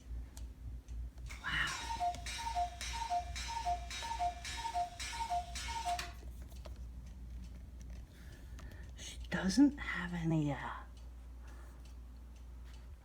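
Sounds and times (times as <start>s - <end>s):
two-note tick-tock: 1.3s - 6.2s.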